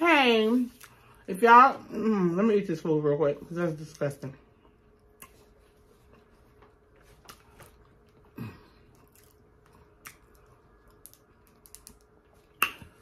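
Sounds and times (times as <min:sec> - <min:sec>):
faint steady hum: 0:00.0 - 0:13.0
person chewing quietly: 0:04.6 - 0:13.0.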